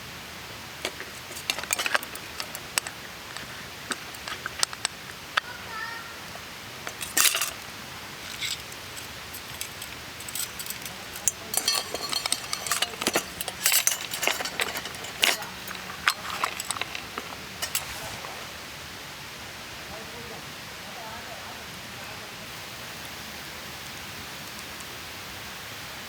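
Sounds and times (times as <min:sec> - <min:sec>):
small objects clinking and rattling: 0:00.8 - 0:05.4, 0:06.3 - 0:18.5.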